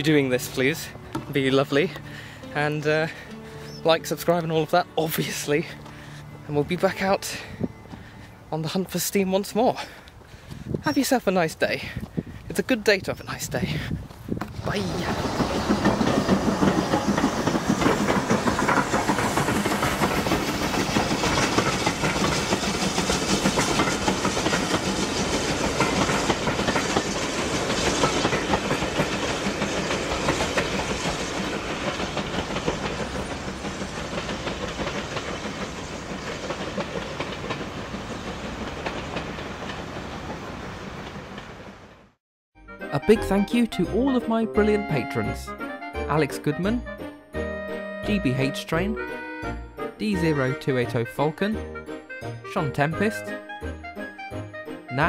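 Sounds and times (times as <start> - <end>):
train wheels clicking over rail joints: 0.0 - 11.1, 13.7 - 42.0.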